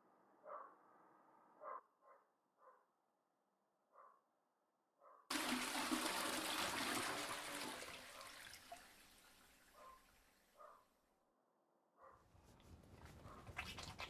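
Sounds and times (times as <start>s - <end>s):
toilet flushing: 5.3s - 10.5s.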